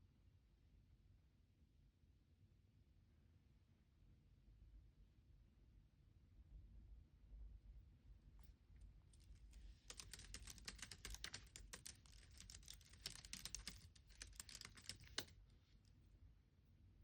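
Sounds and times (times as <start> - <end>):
faint keyboard typing: 9.2 - 15.3.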